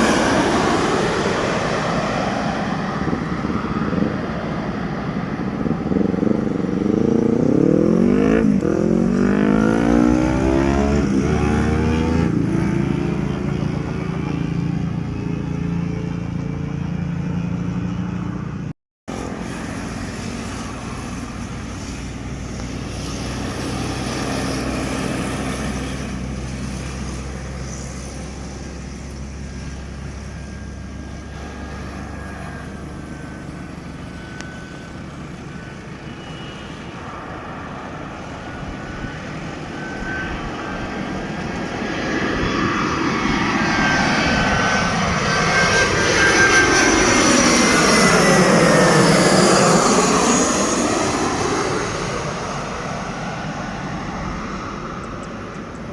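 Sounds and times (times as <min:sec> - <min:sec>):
aircraft engines rumbling: 0:00.0 - 0:55.9
thin steady whine: 0:10.8 - 0:55.9.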